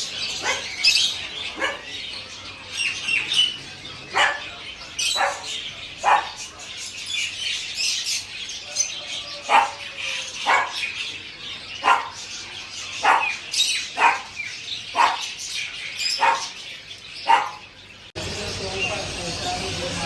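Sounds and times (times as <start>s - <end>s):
caged birds chirping: 0.0s - 20.0s
dog barking: 0.4s - 2.0s, 4.1s - 6.5s, 9.4s - 11.0s, 11.8s - 12.3s, 13.0s - 15.4s, 16.1s - 16.6s, 17.2s - 17.7s.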